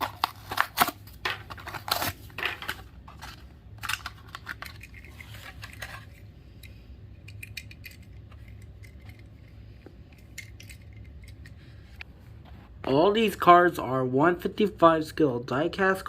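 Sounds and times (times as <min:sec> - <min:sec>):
plastic packaging crackling: 0:00.0 - 0:06.1.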